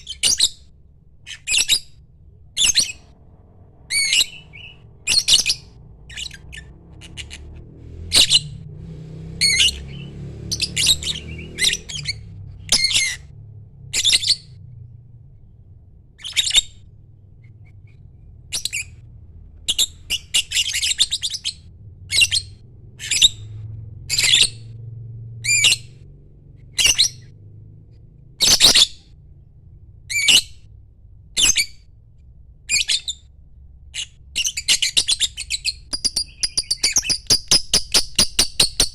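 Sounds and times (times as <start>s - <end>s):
lovebird squawking chirps: 0.0s - 0.6s, 1.3s - 1.9s, 2.6s - 3.1s, 3.9s - 7.5s, 9.4s - 13.3s, 14.0s - 14.6s, 16.2s - 16.8s, 18.5s - 19.0s, 19.6s - 23.5s, 24.1s - 24.7s, 25.4s - 25.9s, 26.8s - 27.3s, 28.4s - 29.0s, 32.7s - 33.3s, 33.9s - 38.9s
low steady hum: 0.0s - 34.7s.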